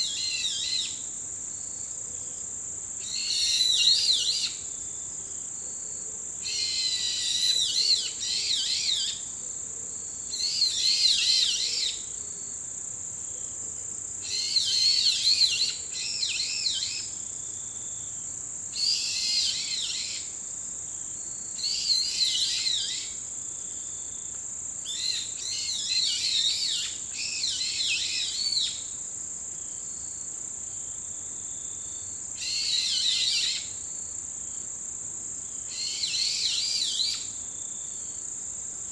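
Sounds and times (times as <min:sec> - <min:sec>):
insect high-pitched trill: 0:31.8 - 0:33.9, 0:35.6 - 0:37.4.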